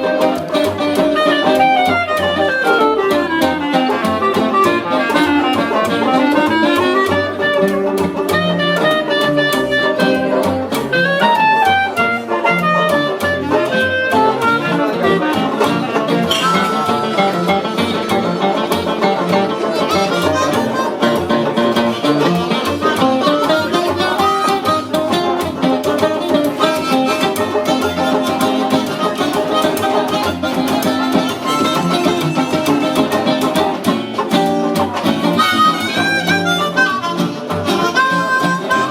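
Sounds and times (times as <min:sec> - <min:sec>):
strummed guitar: 0:00.0 - 0:38.9
melodic lead line: 0:16.2 - 0:19.6.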